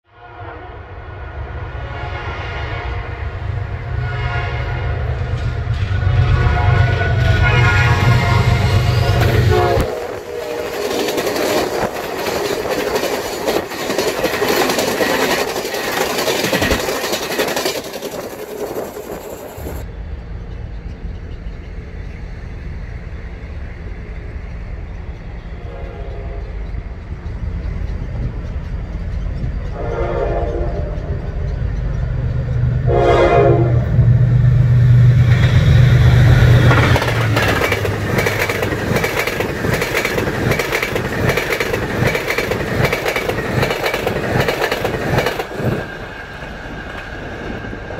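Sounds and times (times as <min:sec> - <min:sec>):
train horn blasts: 0:00.1 - 0:05.3, 0:05.9 - 0:11.9, 0:25.6 - 0:26.6, 0:29.7 - 0:31.4, 0:32.8 - 0:34.2
train engine rumble: 0:00.3 - 0:47.9
train wheels clattering: 0:08.7 - 0:22.6, 0:26.1 - 0:32.9, 0:35.1 - 0:47.9.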